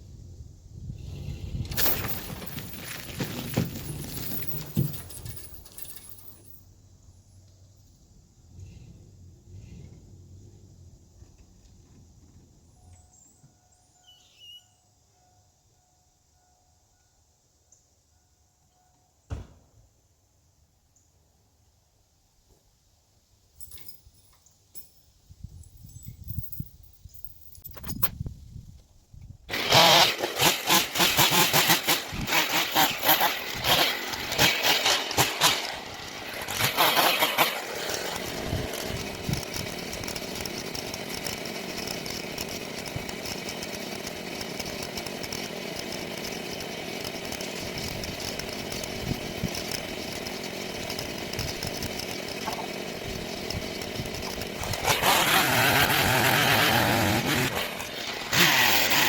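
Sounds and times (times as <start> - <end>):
chainsaw engine revving: 1.0 - 6.1, 8.5 - 10.2, 29.5 - 59.0.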